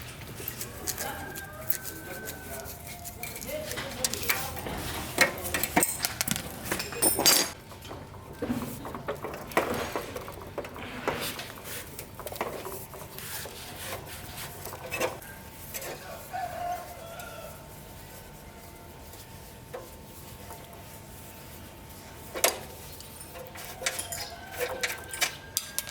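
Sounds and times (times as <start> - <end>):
metal clinks and scrapes: 0.1 - 7.6, 21.8 - 25.9.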